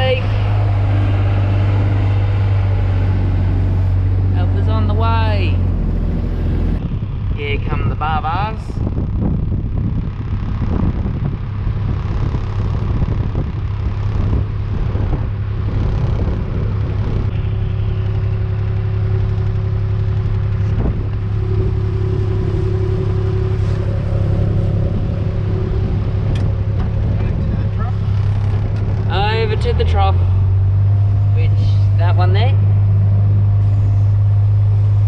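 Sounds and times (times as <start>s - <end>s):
higher steady tone: 0.0s - 8.4s, 16.7s - 35.0s
farm vehicle engine humming: 0.0s - 35.0s.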